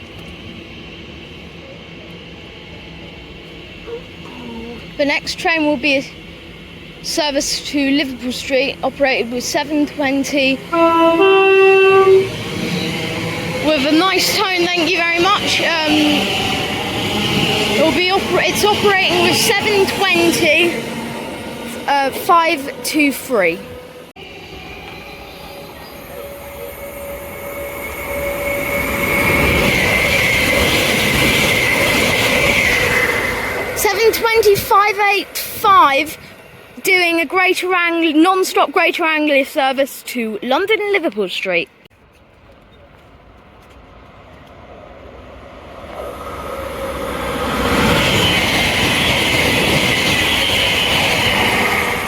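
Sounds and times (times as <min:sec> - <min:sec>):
rail rumble and hiss: 0:00.0 - 0:40.2
electric train approaching: 0:00.0 - 0:41.0, 0:43.3 - 0:52.0.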